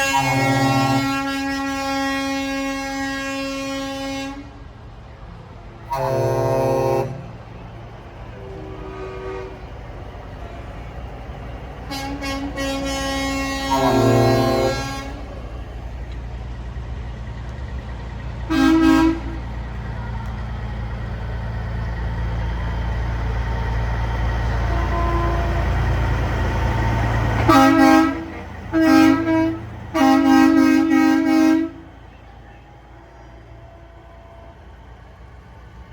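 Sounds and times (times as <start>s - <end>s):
truck air horn blasts: 0.0s - 4.6s, 5.9s - 7.6s, 8.3s - 10.6s, 11.8s - 15.6s, 18.4s - 19.6s, 24.1s - 34.8s
truck engine rumbling: 0.0s - 35.9s.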